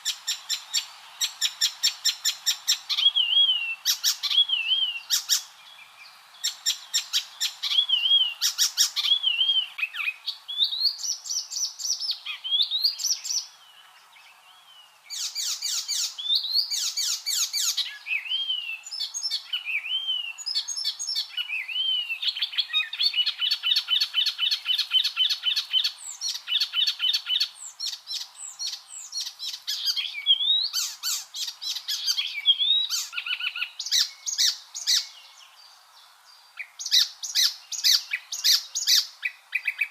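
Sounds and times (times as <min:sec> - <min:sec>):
warbler singing: 0:00.0 - 0:39.9.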